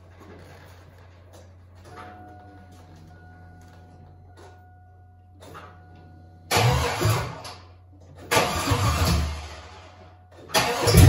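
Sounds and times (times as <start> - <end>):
engine cranking and firing: 6.5 - 11.0.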